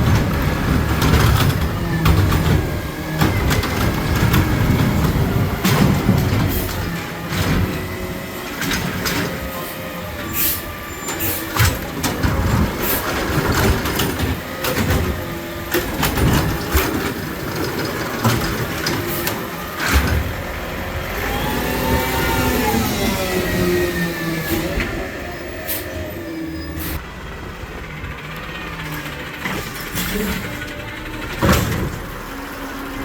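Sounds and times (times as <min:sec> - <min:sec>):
metallic clanks and bangs: 0:00.0 - 0:09.5
garbage truck engine running: 0:00.0 - 0:33.0.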